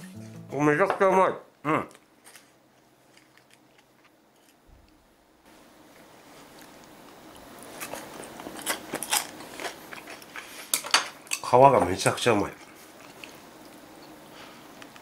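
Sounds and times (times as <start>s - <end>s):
person crunching crispy fish skin: 7.9s - 10.4s.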